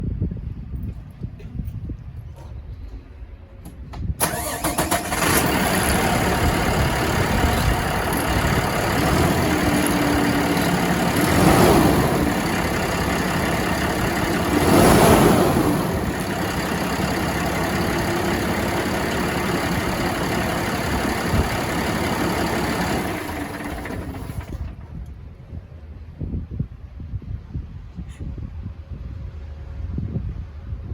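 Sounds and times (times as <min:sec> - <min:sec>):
diesel engine idling and revving: 0:04.2 - 0:25.1
diesel engine cranking: 0:04.2 - 0:25.2.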